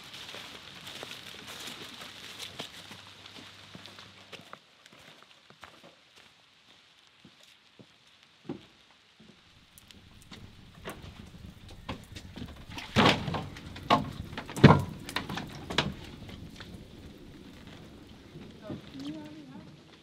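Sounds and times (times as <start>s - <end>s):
firewood logs knocking: 9.6s - 19.3s
light clicks and rustling: 9.7s - 19.4s.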